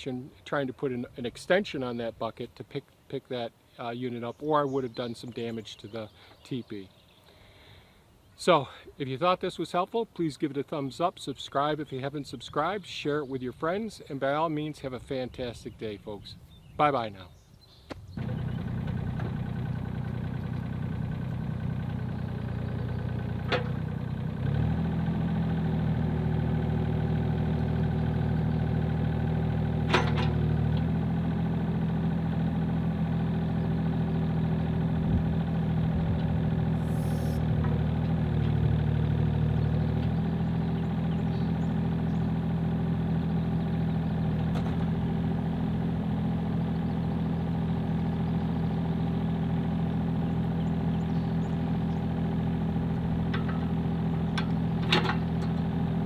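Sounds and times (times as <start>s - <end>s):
excavator diesel engine running: 18.2s - 56.0s.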